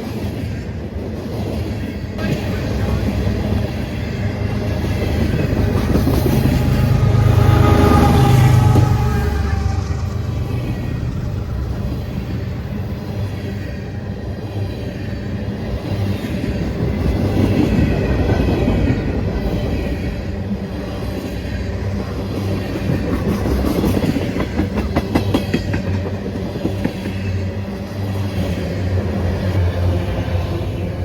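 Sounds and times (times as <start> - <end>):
train passing drone: 0.0 - 31.0.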